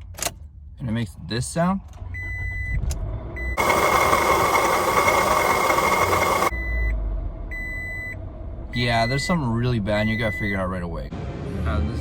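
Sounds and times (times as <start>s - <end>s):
harsh grinding noise: 3.6s - 6.5s
car warning chime beeping: 10.0s - 10.8s.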